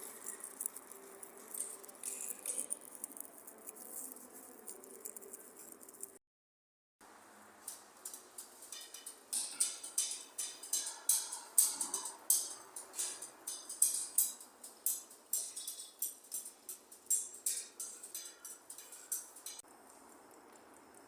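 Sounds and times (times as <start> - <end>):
sharp taps and clinks: 0.0 - 3.4, 7.7 - 19.7.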